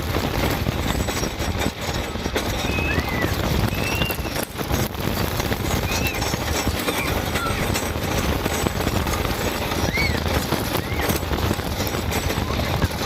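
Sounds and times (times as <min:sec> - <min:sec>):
roller coaster rattling on track: 0:00.0 - 0:13.0
short high squeals or cries: 0:02.6 - 0:04.4, 0:09.8 - 0:11.2.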